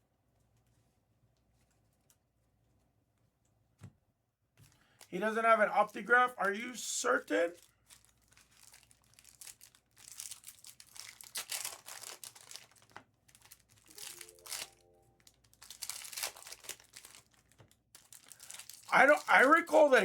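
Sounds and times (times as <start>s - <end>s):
plastic wrappers crinkling and tearing: 4.6s - 5.1s, 7.5s - 20.0s
cards shuffling: 13.9s - 14.8s.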